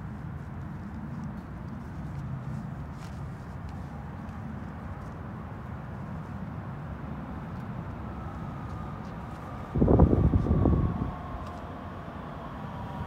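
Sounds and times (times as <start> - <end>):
distant train rumble: 7.0 - 13.0.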